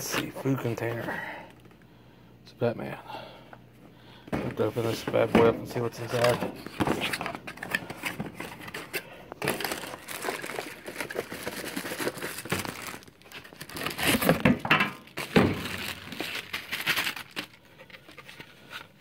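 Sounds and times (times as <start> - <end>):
handling noises: 4.2 - 19.0
packaging crinkling and rustling: 5.9 - 19.0.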